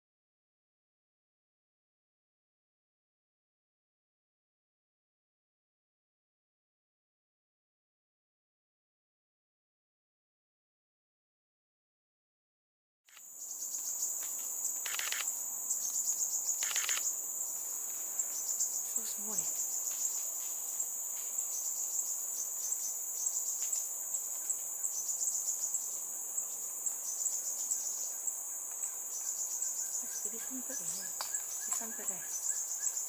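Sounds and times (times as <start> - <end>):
high-pitched insect drone: 13.1 - 33.0
bird chirping calls: 26.8 - 33.0.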